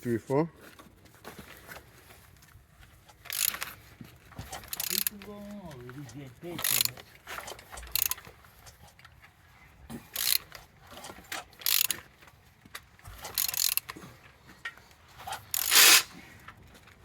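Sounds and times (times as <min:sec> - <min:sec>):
ratchet turning engine crankshaft: 0:03.3 - 0:03.8, 0:04.4 - 0:05.3, 0:06.0 - 0:08.3, 0:10.1 - 0:12.0, 0:13.2 - 0:13.9, 0:15.4 - 0:16.1.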